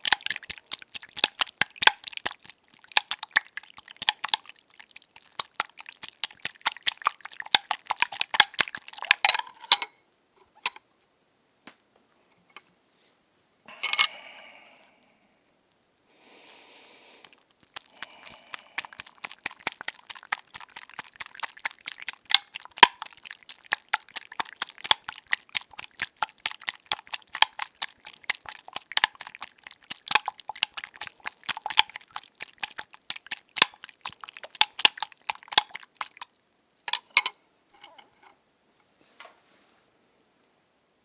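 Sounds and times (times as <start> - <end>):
eggs being beaten in a bowl: 0.0 - 9.3, 16.5 - 37.0.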